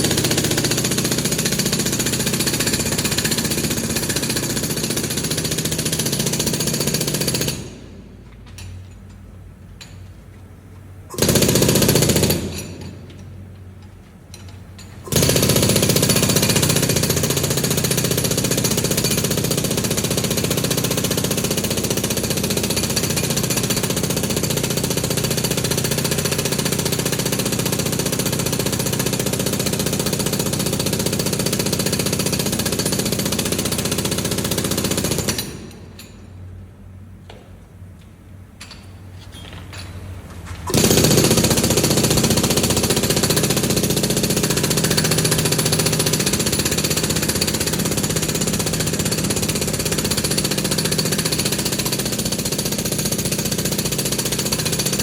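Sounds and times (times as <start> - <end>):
jackhammer breaking concrete: 0.0 - 8.0, 11.1 - 13.0, 15.0 - 36.1, 40.7 - 55.0.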